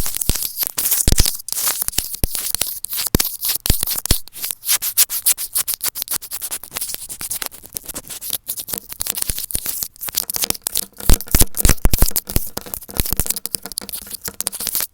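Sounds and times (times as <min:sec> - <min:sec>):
microphone rubbing and scratching: 0:10.1 - 0:14.9.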